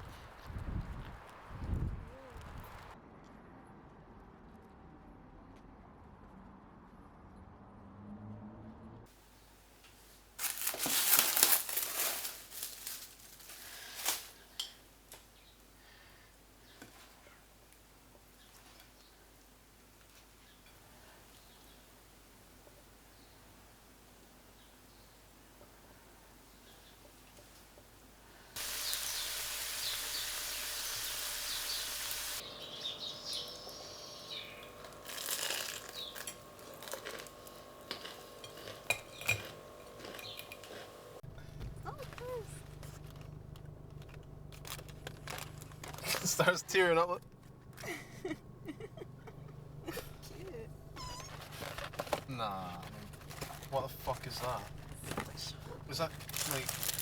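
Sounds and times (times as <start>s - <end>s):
crinkling rustling handling noise: 9.8s - 15.3s, 34.6s - 57.0s
loud steady hiss: 28.5s - 36.1s
small birds chirping: 28.6s - 36.7s, 40.0s - 40.6s, 48.7s - 57.0s.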